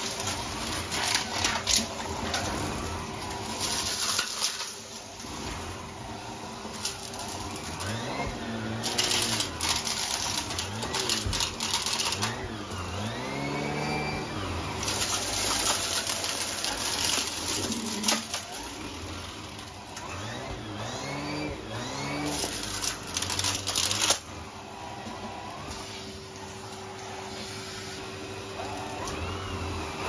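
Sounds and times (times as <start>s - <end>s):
air and debris hissing in hose: 0.0s - 13.2s
vacuum cleaner motor running: 0.0s - 30.0s.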